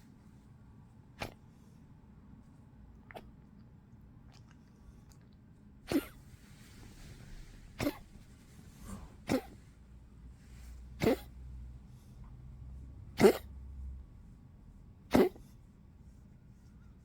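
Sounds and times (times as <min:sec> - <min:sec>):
dog coughing: 0:05.8 - 0:06.3, 0:07.8 - 0:08.2, 0:08.8 - 0:09.8, 0:10.9 - 0:11.4, 0:13.1 - 0:13.6, 0:15.0 - 0:15.6.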